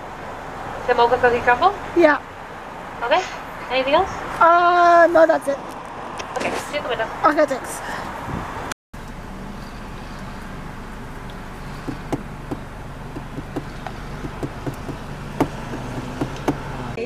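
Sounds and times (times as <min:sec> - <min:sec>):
car engine idling: 0:00.0 - 0:05.3, 0:09.0 - 0:17.0.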